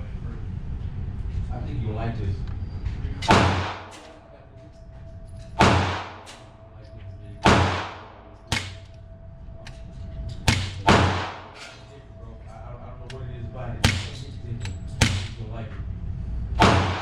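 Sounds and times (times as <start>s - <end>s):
pistol shots with echo: 3.3s - 4.2s, 5.6s - 6.5s, 7.4s - 9.0s, 10.4s - 11.8s, 13.8s - 15.5s, 16.6s - 17.0s.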